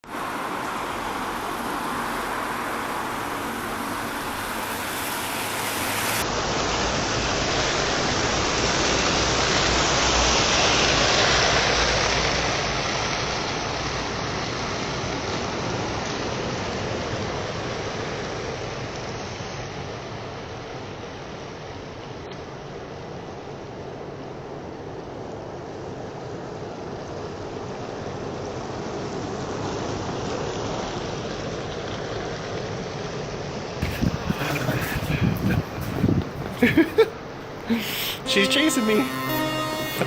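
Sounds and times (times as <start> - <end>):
steady rushing noise: 33.8 - 38.2.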